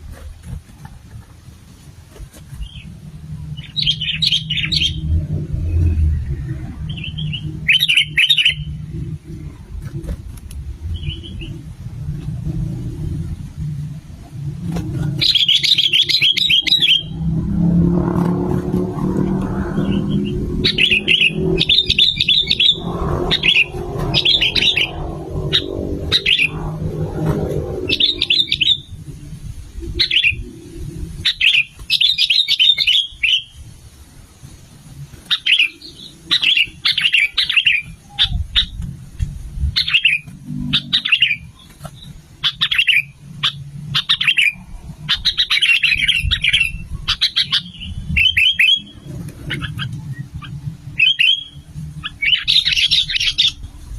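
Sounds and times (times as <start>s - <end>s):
bulbuls chirping: 2.4s - 33.7s, 35.1s - 38.9s, 39.6s - 53.9s
low hum: 2.6s - 31.8s.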